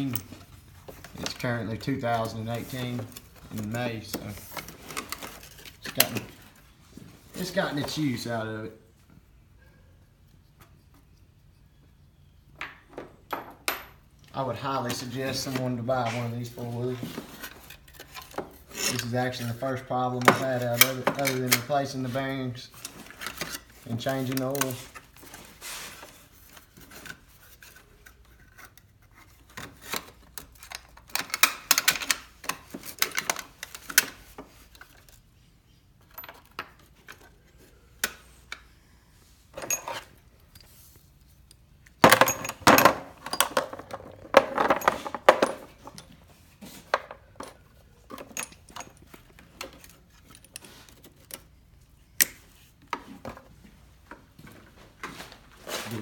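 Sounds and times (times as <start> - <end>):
metal tools clinking: 17.4 - 22.1, 39.6 - 40.8, 42.0 - 46.2, 47.4 - 51.4.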